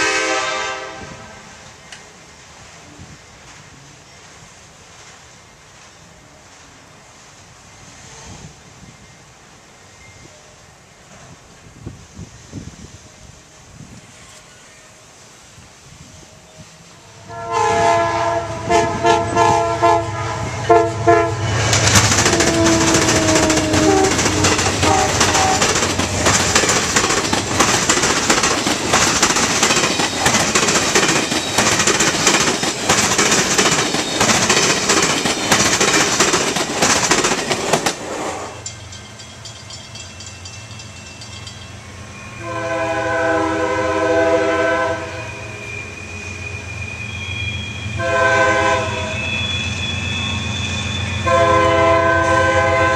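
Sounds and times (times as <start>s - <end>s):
train horn blasts: 0.0s - 1.6s, 16.4s - 25.8s, 42.2s - 52.9s
train rumble and wheel clatter: 0.0s - 52.9s.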